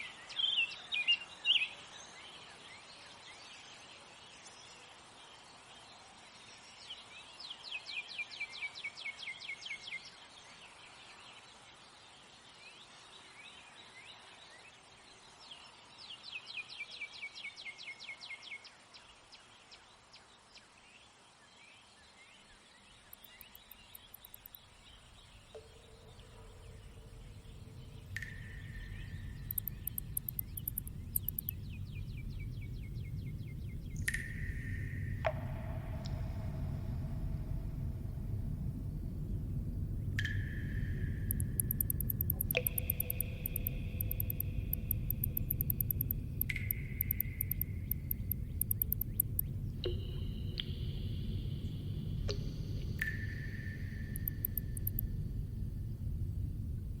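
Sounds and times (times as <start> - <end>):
faint outdoor hiss: 0.0 - 57.0
low rumble: 24.7 - 57.0
held tones: 26.2 - 55.6.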